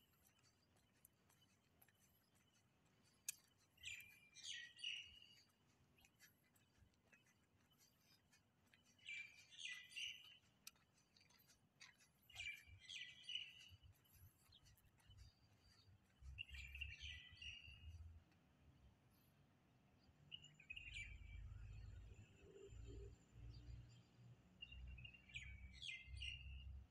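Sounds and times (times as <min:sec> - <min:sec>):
faint bird chirps: 0:00.0 - 0:18.1.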